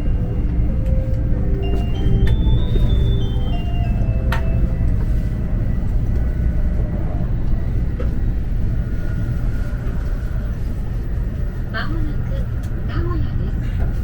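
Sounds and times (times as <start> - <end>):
train cabin rumble: 0.0 - 14.0
announcement chime: 1.4 - 5.2.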